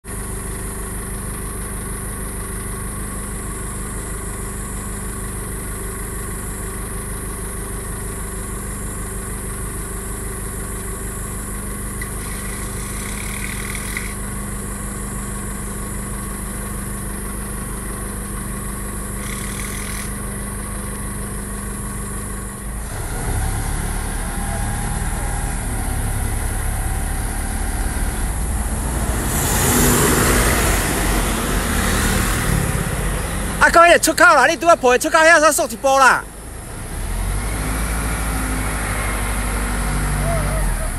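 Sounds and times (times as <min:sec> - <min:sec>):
engine humming: 0:00.0 - 0:40.9
loud rough noise: 0:22.8 - 0:35.2.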